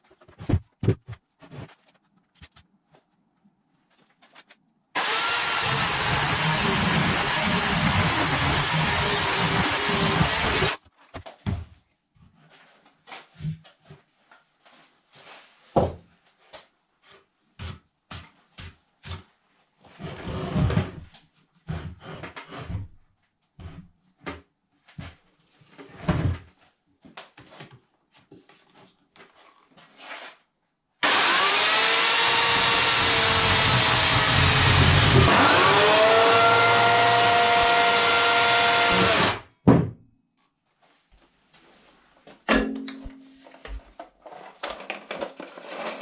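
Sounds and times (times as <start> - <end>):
electric chainsaw cutting wood: 5.0 - 10.8, 31.0 - 39.4.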